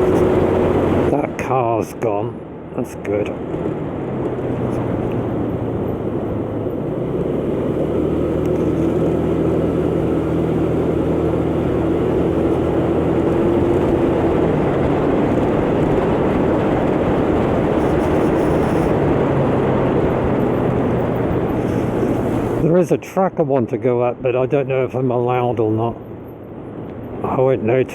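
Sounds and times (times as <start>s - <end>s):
motor scooter engine running: 0.0s - 1.1s, 4.5s - 22.6s
wind rushing over microphone: 0.0s - 22.7s.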